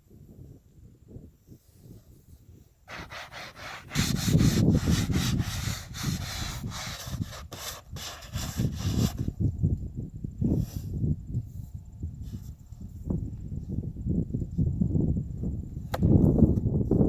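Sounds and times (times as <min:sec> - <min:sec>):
scraping and rubbing on wood: 0:02.9 - 0:09.3.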